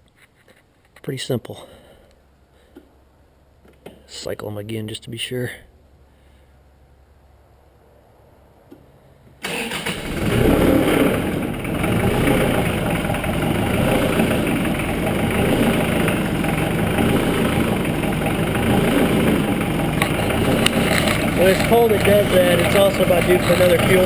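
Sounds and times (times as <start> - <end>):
diesel tractor engine starting: 9.4 - 24.0
tractor engine idling with pulses: 9.4 - 24.0.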